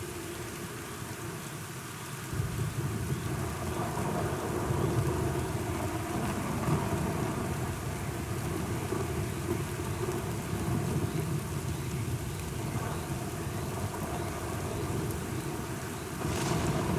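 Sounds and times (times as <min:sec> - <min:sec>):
heavy rain falling: 0:00.1 - 0:16.9
distant thunder rumble: 0:10.5 - 0:16.9.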